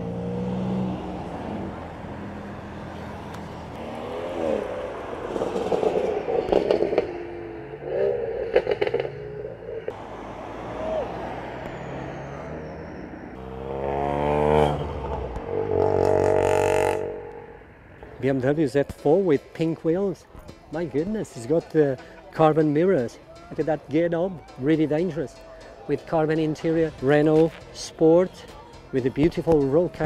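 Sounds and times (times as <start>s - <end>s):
car engines revving past: 0.0s - 18.3s.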